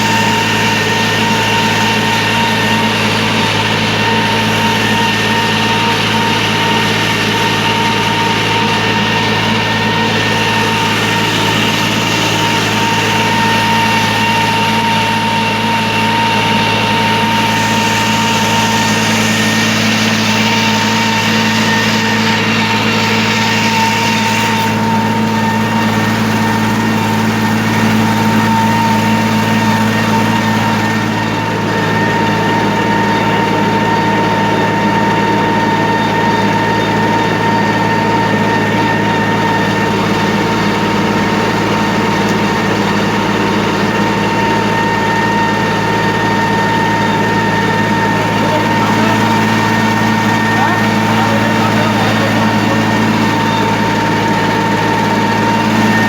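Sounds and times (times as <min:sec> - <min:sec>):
steady whine: 0:00.0 - 0:56.0
tractor diesel engine under load: 0:00.0 - 0:56.0.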